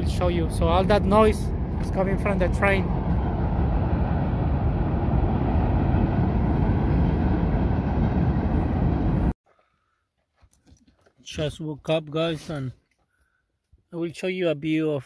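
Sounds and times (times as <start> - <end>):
train passing rumble: 0.0 - 9.4.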